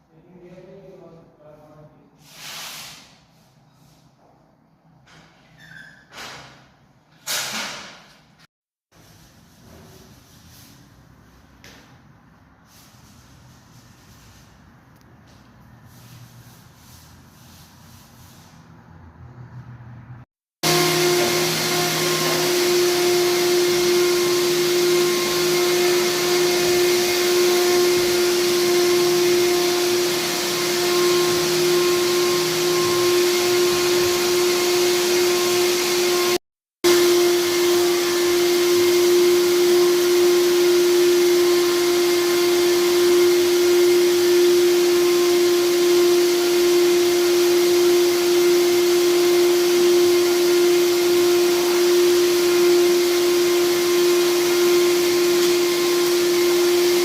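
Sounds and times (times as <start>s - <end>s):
vacuum machine humming and hissing: 20.6s - 57.0s.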